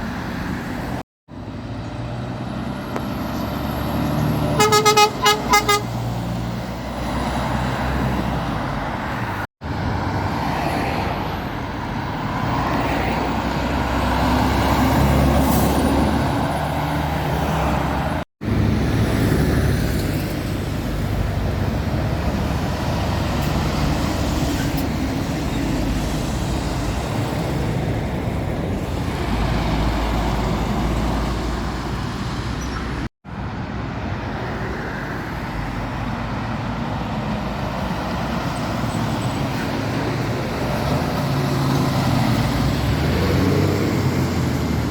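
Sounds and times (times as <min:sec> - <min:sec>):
road traffic passing: 0:00.0 - 0:44.9
vehicle horn toots: 0:04.6 - 0:05.9.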